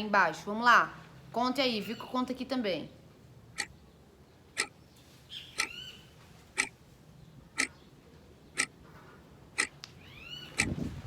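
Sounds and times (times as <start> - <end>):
clock ticking: 4.6 - 4.8, 8.6 - 8.8, 9.6 - 9.8.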